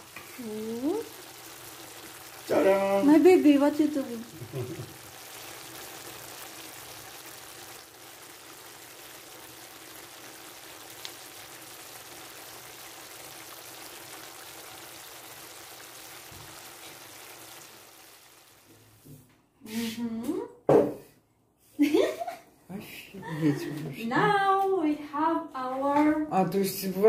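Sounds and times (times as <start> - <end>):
food sizzling in a pan: 0.0 - 20.3.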